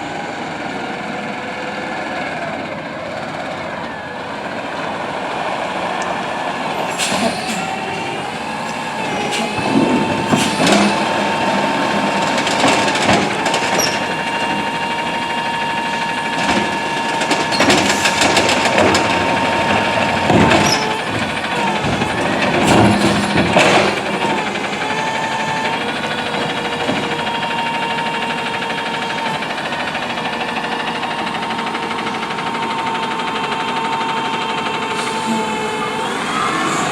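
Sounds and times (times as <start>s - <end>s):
garbage truck engine: 0.0s - 36.9s
hydraulics whining: 0.0s - 36.9s
bangs and clatter of cart handling: 8.7s - 28.8s.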